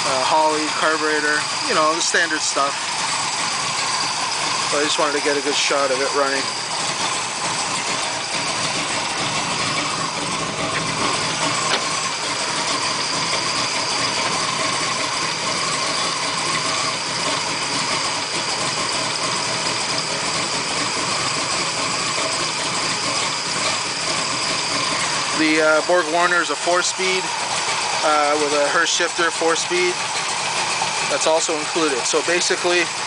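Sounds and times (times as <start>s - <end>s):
big engine idling: 0.0s - 33.0s.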